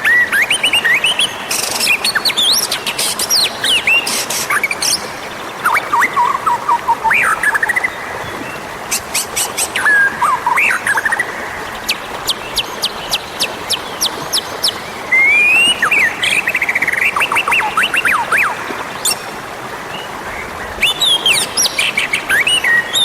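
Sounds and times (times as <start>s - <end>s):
bird singing whistled phrases: 15.1s - 18.6s.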